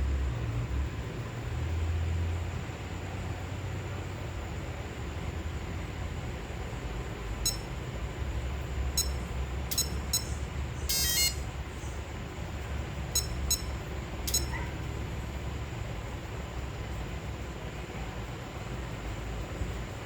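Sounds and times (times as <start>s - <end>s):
electronic ignition beeps: 7.4s - 7.8s, 8.9s - 11.5s, 13.1s - 14.6s
warbling electronic chirp: 7.5s - 7.7s, 9.0s - 11.4s, 13.2s - 14.6s.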